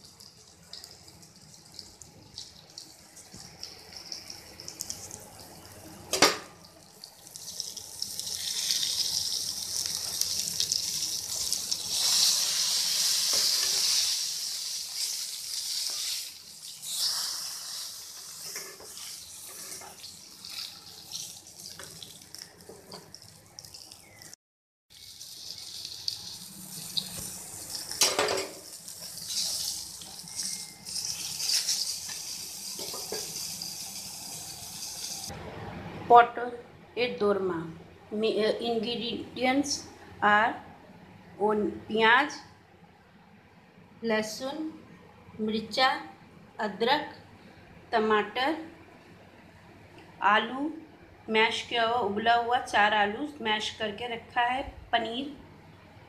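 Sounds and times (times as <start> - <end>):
vegetables sizzling in oil: 2.3 - 35.3.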